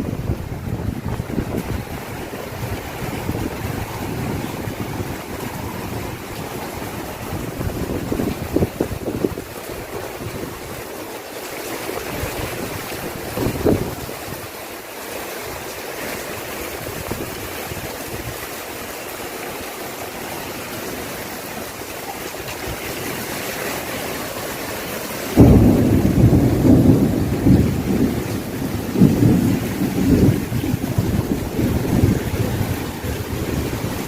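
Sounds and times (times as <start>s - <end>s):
rain falling: 0.0s - 34.0s.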